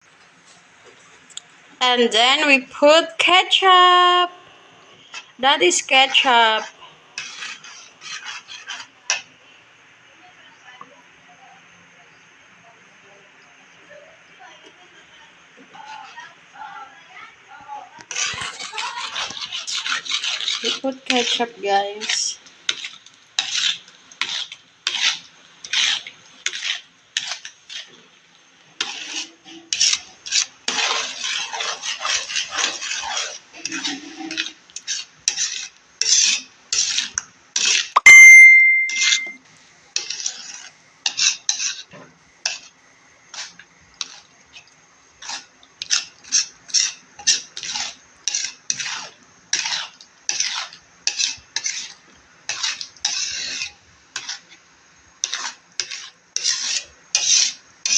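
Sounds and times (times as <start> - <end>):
spoon stirring sauce in a pan: 5.0 - 9.4, 15.5 - 16.2, 18.0 - 57.9
sharp ringing clink: 38.0 - 39.4.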